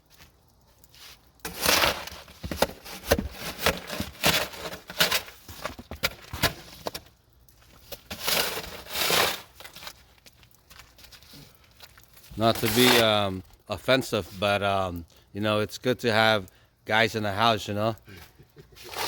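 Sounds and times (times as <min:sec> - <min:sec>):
snow shovel scraping snow: 0:01.0 - 0:05.5, 0:08.1 - 0:09.7.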